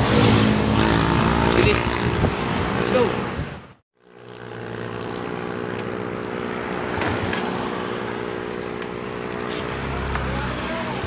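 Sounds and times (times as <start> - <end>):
wind and road noise: 0.0 - 11.0
motorcycle engine running: 4.0 - 11.0.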